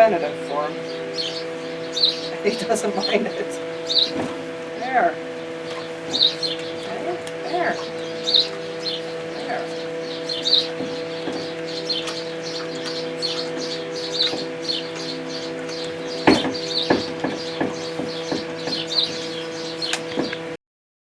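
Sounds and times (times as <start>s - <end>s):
birds chirping: 0.0s - 20.6s
steady low hum: 0.0s - 20.6s
sharp clicks and knocks: 10.7s - 19.2s.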